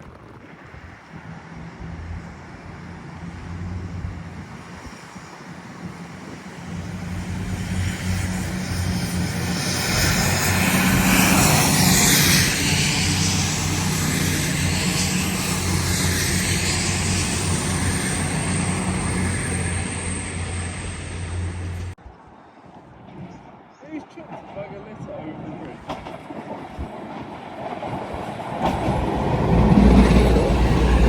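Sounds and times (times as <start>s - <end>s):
train passing: 0.4s - 22.0s, 22.7s - 31.0s
low engine hum: 1.2s - 22.0s.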